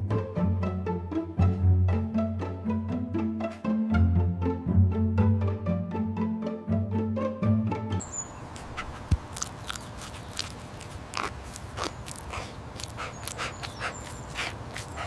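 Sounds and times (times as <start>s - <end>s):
background music: 0.0s - 8.1s
dog mouth clicking noises: 8.5s - 15.0s.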